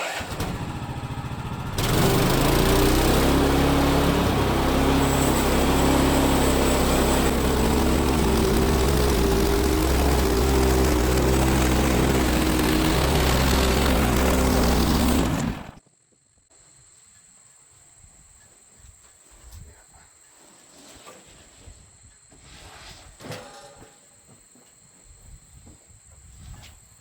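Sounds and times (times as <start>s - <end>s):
sawmill engine running under load: 0.1s - 15.8s.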